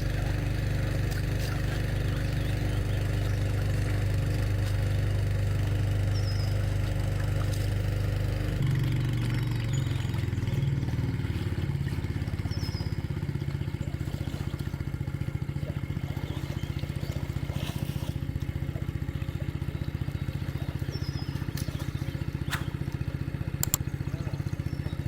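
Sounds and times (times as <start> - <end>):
small engine running: 0.0 - 25.0
sharp clicks: 23.6 - 23.8.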